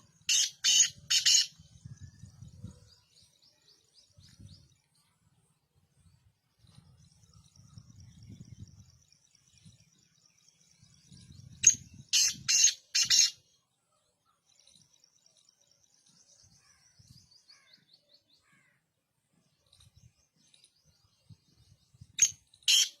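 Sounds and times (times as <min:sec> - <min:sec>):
faint high twittering: 0:00.0 - 0:18.8
bird harsh grating call: 0:00.3 - 0:01.6, 0:12.1 - 0:13.4, 0:22.2 - 0:23.0.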